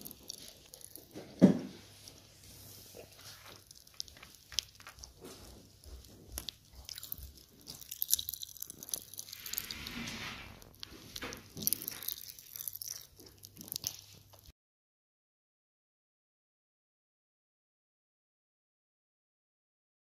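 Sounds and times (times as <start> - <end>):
crunchy candy being chewed: 0.0 - 14.5.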